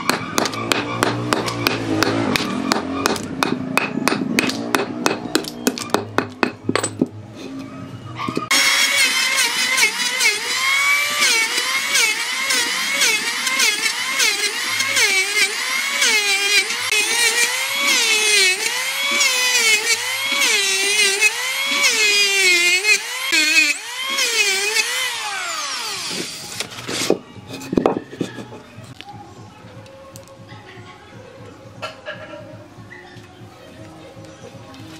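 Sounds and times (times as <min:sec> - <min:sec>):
power tool cutting wood: 0:00.0 - 0:03.5, 0:08.4 - 0:27.2.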